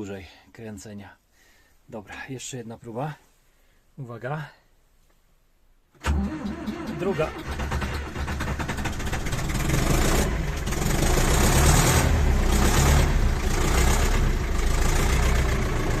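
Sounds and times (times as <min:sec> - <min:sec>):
diesel tractor engine cranking: 0:06.0 - 0:16.0.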